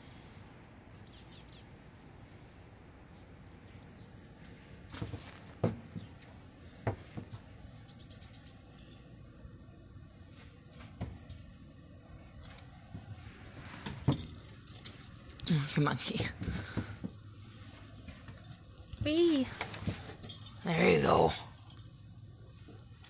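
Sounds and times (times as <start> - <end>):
small bird chirping: 0.9 - 1.7, 3.6 - 4.4, 6.0 - 9.1.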